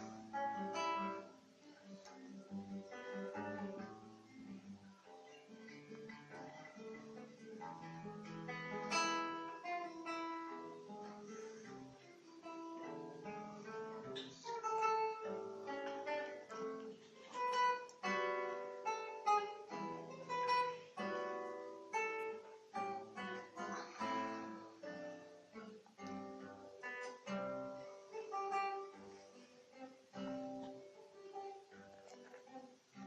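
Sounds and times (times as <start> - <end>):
classical guitar playing: 0.0 - 33.0.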